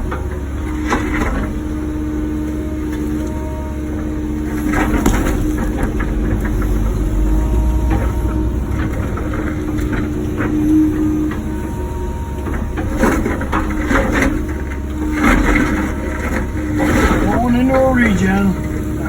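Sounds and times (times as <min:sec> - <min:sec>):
diesel engine running: 0:00.0 - 0:19.0
hydraulic whine: 0:00.0 - 0:19.0
bucket scraping concrete: 0:04.4 - 0:19.0.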